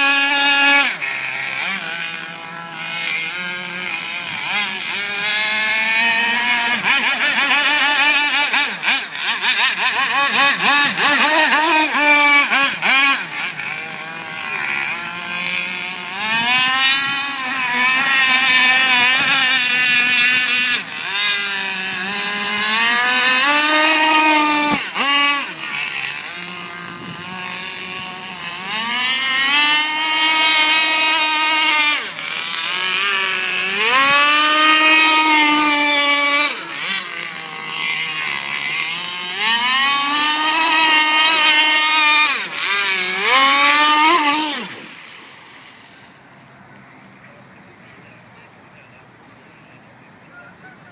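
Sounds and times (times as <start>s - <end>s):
model boat engine revving: 0.0s - 48.4s.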